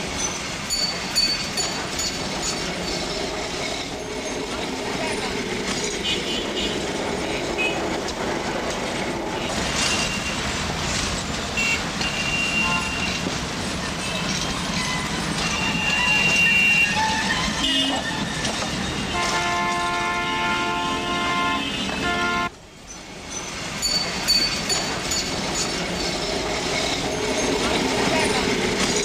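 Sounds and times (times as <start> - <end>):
traffic engines and road noise: 0.0 - 29.0
vehicle horns tooting: 11.6 - 13.2, 15.7 - 18.1, 19.1 - 22.5.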